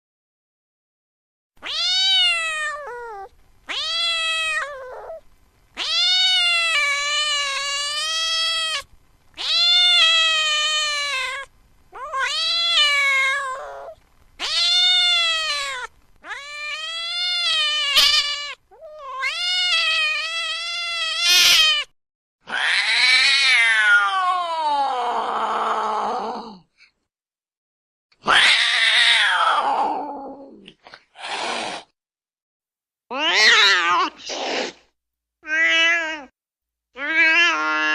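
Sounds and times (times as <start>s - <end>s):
cat yowling: 1.6s - 5.2s, 5.8s - 21.9s, 22.5s - 26.3s, 28.2s - 30.6s, 33.1s - 34.3s, 35.4s - 36.4s, 37.0s - 37.9s.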